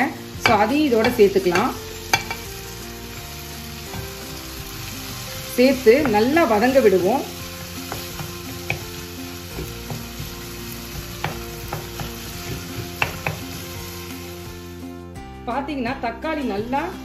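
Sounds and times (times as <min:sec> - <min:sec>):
vegetables sizzling in oil: 0:00.0 - 0:15.0
spatula tapping and scraping pan: 0:00.4 - 0:02.5, 0:07.8 - 0:13.7.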